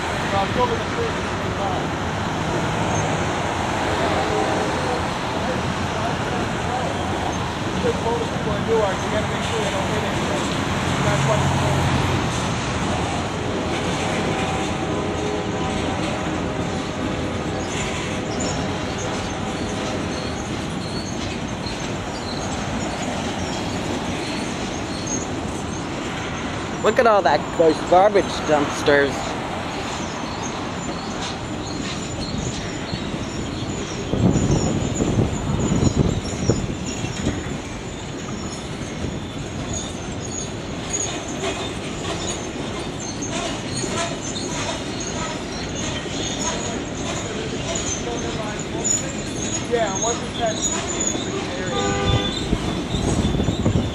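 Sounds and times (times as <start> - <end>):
train wheels rumbling on rail: 0.0 - 53.9
faint wheel squeals: 13.8 - 27.8, 28.4 - 53.9.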